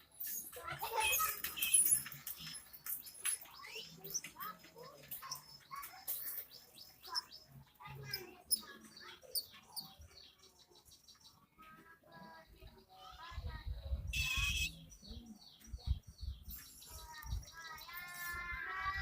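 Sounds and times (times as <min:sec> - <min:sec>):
bird chattering squeaky chirps: 0:00.2 - 0:10.6, 0:14.1 - 0:15.2.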